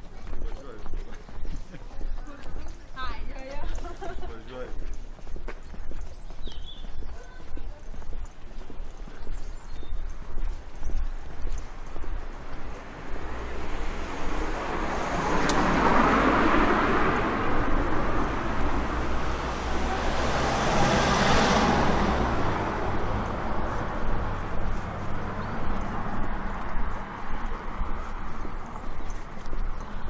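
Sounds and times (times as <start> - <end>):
vehicle passing by: 11.7 - 30.0.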